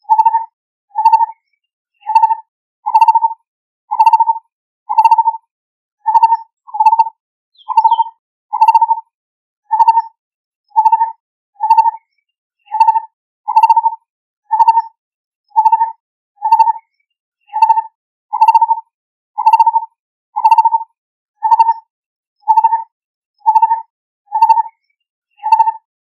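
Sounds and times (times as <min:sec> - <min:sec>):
barbet calling: 0:06.1 - 0:08.9.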